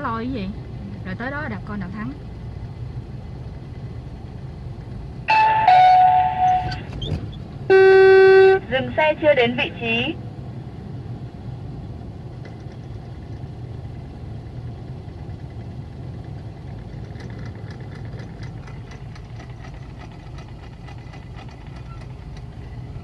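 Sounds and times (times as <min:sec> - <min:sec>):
car engine running at low revs: 0:00.0 - 0:23.0
light clicks and rattles: 0:12.3 - 0:13.5, 0:16.6 - 0:22.6.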